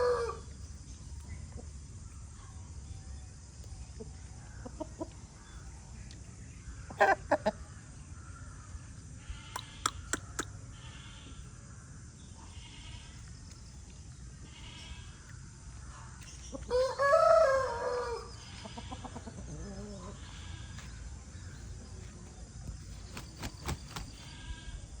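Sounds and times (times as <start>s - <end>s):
cockerel crowing: 0.0s - 0.5s, 16.7s - 19.3s.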